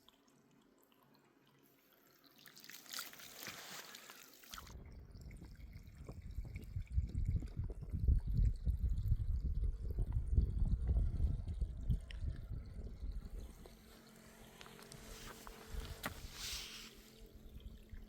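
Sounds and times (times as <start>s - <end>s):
water trickling and dripping: 0.0s - 18.0s
hissing splash: 15.0s - 17.3s.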